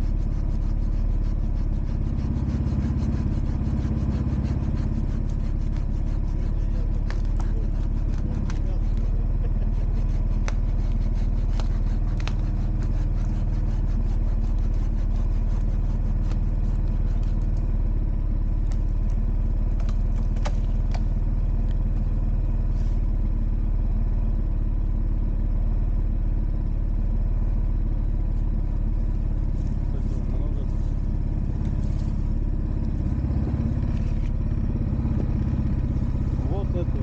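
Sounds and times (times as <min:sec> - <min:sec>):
engine running: 0:00.0 - 0:37.0
clicks and clatter: 0:06.8 - 0:09.1, 0:18.6 - 0:21.8.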